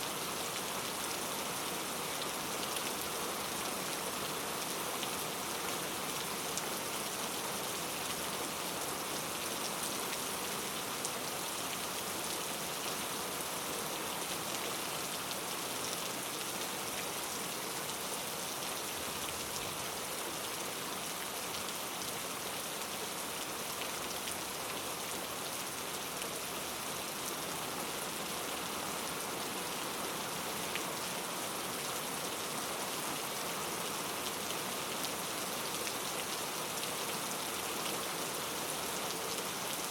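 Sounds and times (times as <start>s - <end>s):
rain on foliage: 0.0s - 39.9s.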